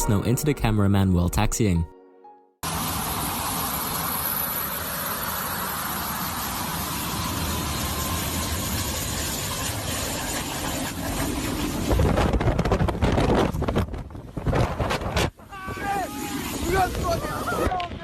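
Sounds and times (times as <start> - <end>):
jet engines running: 2.6 - 13.2, 15.7 - 18.0.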